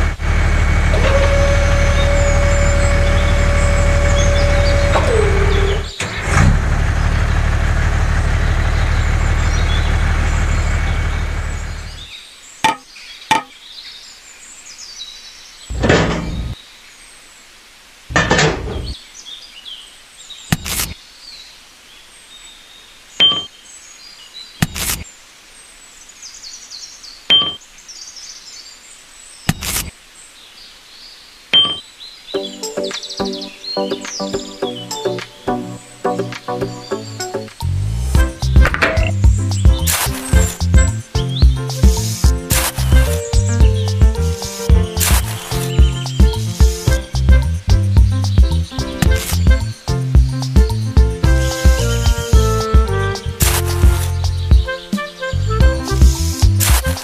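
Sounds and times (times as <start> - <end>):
motor running: 0.0 - 12.0
sharp knocks: 12.6 - 13.5
faint bird chirps: 18.8 - 50.8.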